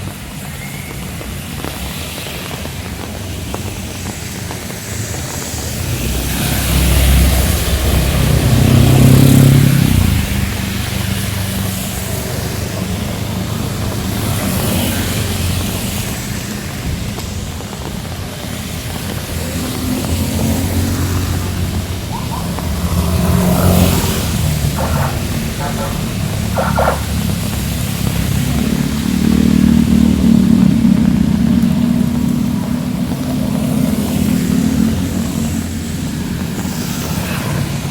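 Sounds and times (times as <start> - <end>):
heavy rain falling: 0.0 - 37.9
vehicle passing: 5.9 - 12.0, 19.6 - 37.9.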